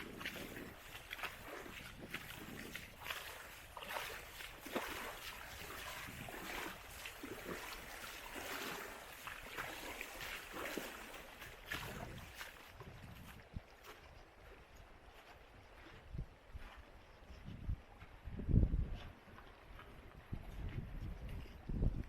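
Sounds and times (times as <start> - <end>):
footsteps on trail: 0.0 - 22.0
river water rushing: 2.9 - 12.5.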